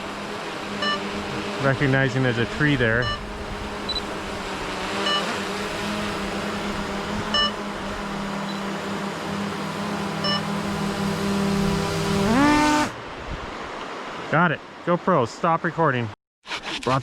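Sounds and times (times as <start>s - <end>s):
drone propellers humming: 0.0s - 13.1s
short beeps: 0.8s - 1.0s, 3.0s - 3.2s, 5.0s - 5.3s, 7.3s - 7.6s, 10.2s - 10.5s.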